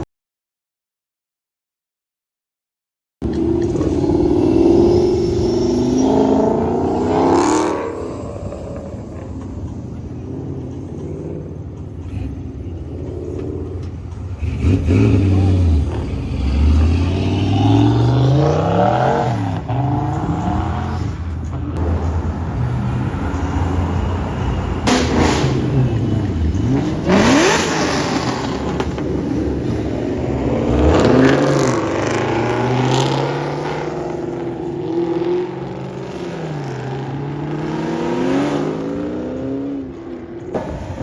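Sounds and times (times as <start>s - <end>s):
car engines revving: 3.2s - 41.0s.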